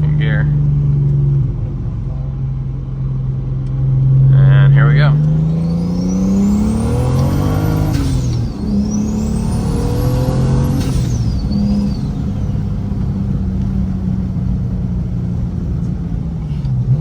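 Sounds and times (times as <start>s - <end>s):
car engine pulling under boost: 0.0s - 17.0s
turbo whistle: 5.5s - 12.8s.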